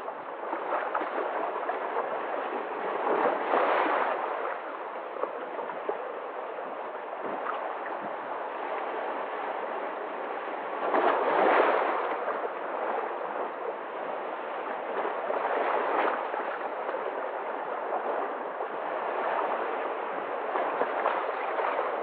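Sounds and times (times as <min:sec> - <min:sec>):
sea waves lapping: 0:00.0 - 0:22.0.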